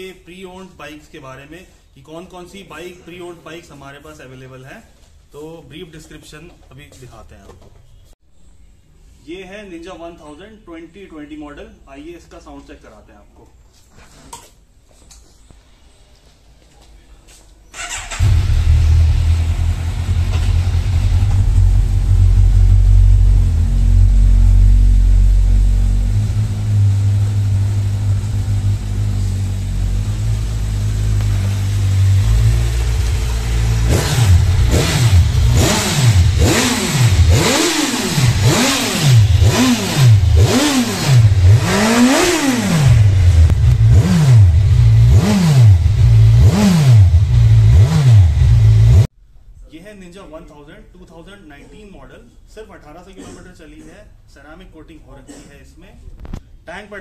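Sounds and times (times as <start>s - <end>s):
motorcycle engine revving: 17.8s - 49.1s
motorcycle engine idling: 18.1s - 37.6s.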